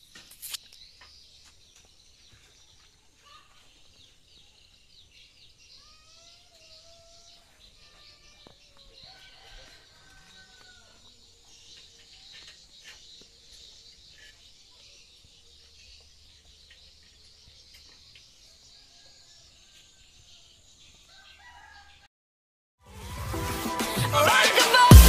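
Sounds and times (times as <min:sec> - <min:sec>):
loud music with a beat: 0:22.9 - 0:25.0.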